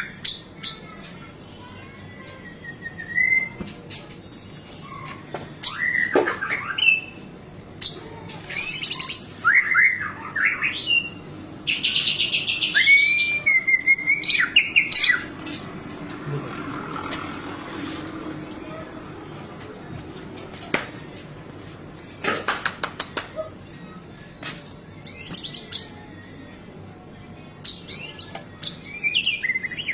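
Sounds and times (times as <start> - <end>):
buzzy bird trill: 0.0 - 19.5, 24.9 - 29.9
songbird singing whistled phrases: 2.3 - 3.6, 4.9 - 7.2, 7.8 - 15.3, 27.6 - 29.9.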